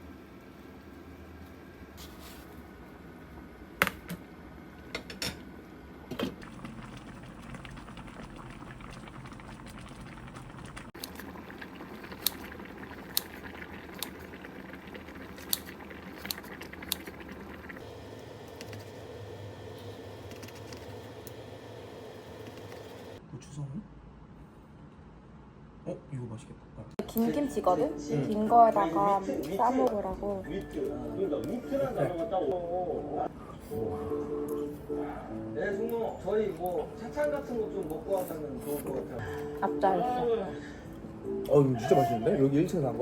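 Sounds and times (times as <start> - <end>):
food boiling in a pot: 5.5 - 23.2.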